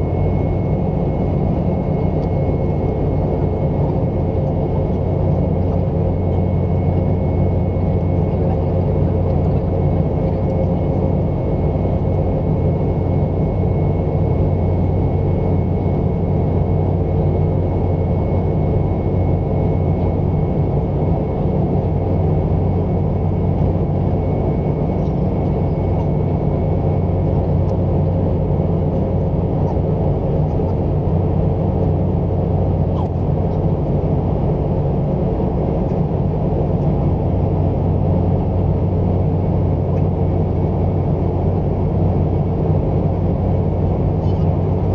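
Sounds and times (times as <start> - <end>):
jet engines droning in flight: 0.0 - 44.9.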